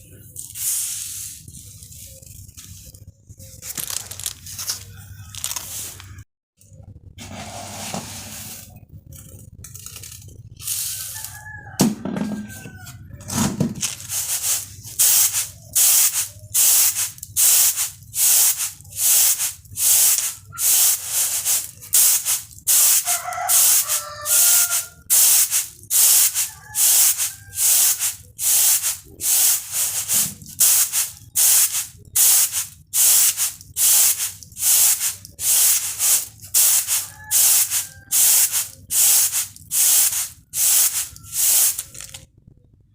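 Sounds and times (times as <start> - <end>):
rice rattling on bamboo tray: 13.3 - 42.2
chickens calling: 22.9 - 25.1, 26.4 - 27.6, 36.5 - 39.0.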